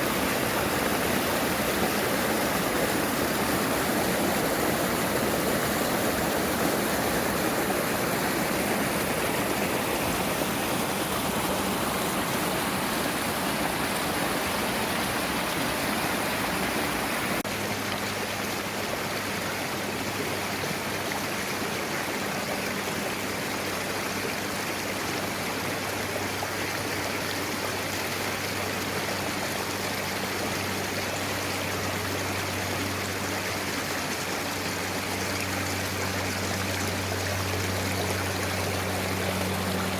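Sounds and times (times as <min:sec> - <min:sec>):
stream flowing: 0:00.0 - 0:39.9
low steady hum: 0:28.2 - 0:39.9.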